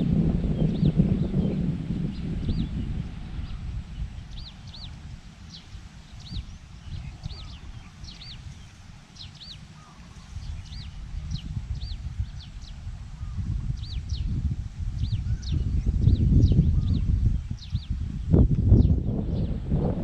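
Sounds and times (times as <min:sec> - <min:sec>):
low wind rumble: 0:00.0 - 0:20.0
bird chirping: 0:04.3 - 0:14.4.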